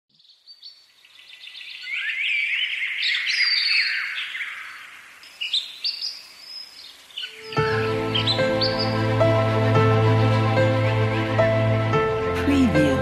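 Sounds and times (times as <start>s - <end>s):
birds chirping and whistling: 0.2s - 9.6s.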